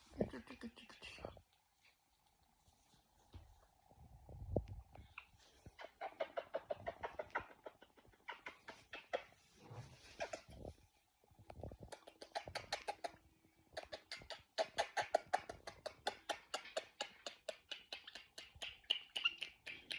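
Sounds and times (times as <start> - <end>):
birds making kissing smacks: 11.9 - 13.2, 13.8 - 19.9.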